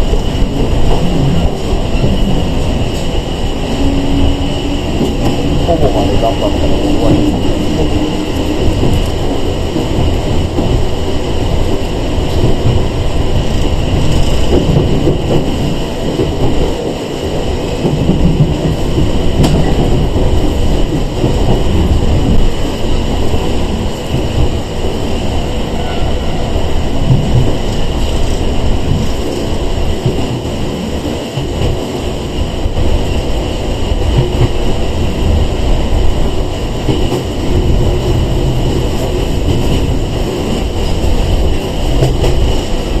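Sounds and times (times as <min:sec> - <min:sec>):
rail-joint clicks: 0:00.0 - 0:43.0
train wheels rumbling on rail: 0:00.0 - 0:43.0.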